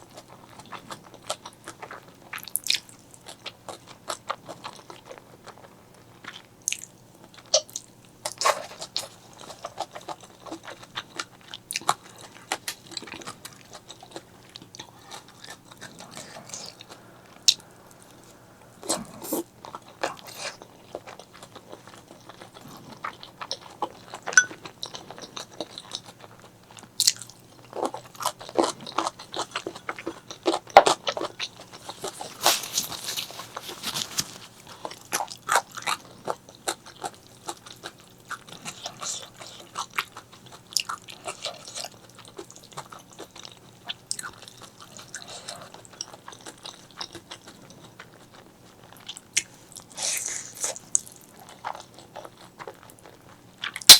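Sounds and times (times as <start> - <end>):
person biting and chewing food: 28.2 - 36.0.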